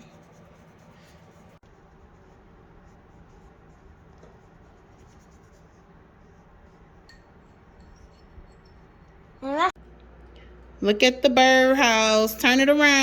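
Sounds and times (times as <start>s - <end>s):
paintbrushes scratching on wood: 0.0s - 9.3s.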